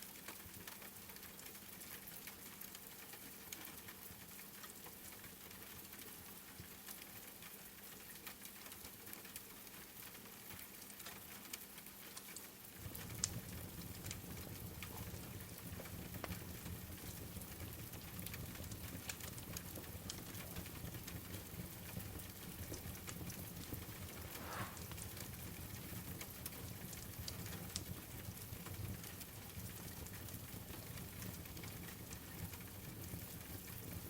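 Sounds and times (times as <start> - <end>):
steady rain: 0.0 - 34.0
wood fire crackling: 0.1 - 34.0
deep rushing noise: 24.0 - 24.9.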